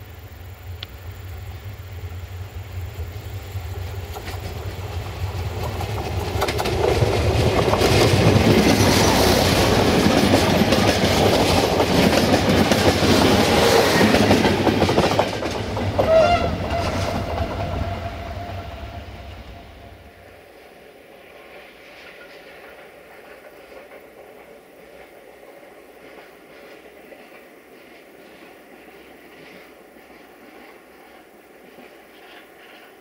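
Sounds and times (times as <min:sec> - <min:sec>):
train wheels clattering over rail joints: 0:04.0 - 0:18.3.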